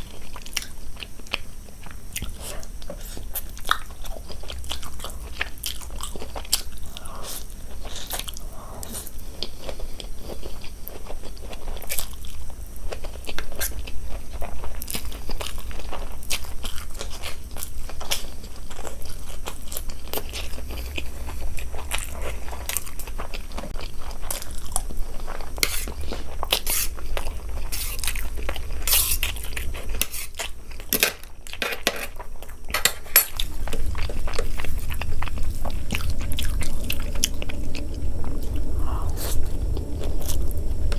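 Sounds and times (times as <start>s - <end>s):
person chewing food: 0.0s - 40.9s
steady low hum: 0.0s - 40.9s.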